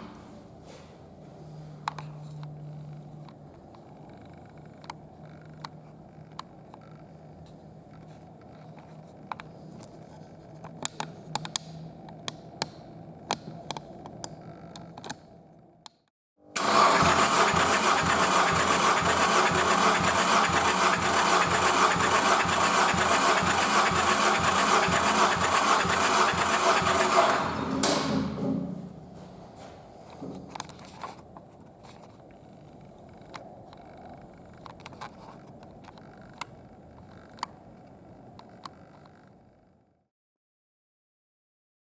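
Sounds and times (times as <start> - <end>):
engine cranking on starter: 16.6 - 28.3.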